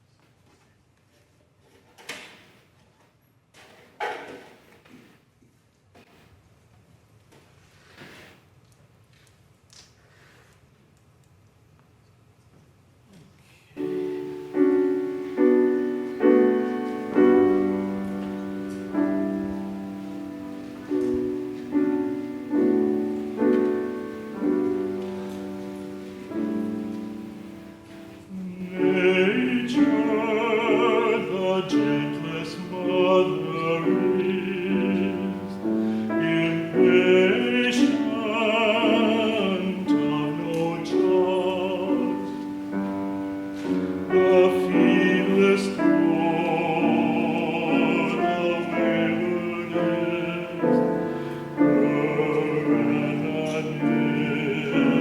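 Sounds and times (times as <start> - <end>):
person singing with vibrato: 13.8 - 55.0
piano playing: 13.8 - 55.0.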